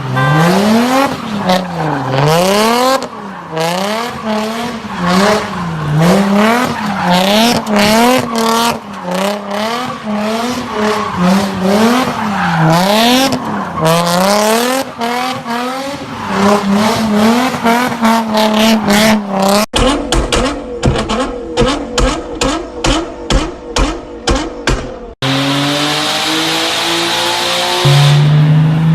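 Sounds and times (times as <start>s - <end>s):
high-revving car engine: 0.0s - 28.9s
exhaust pops: 19.7s - 25.0s.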